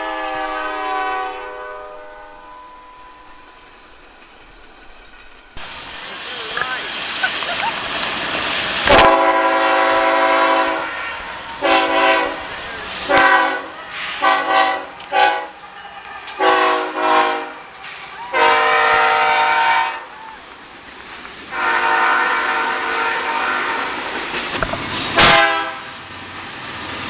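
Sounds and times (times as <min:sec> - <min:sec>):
locomotive air horn blasts: 0:00.0 - 0:03.2, 0:08.8 - 0:12.5, 0:13.1 - 0:15.6, 0:16.4 - 0:17.7, 0:18.3 - 0:20.1, 0:21.5 - 0:24.0, 0:25.2 - 0:26.0.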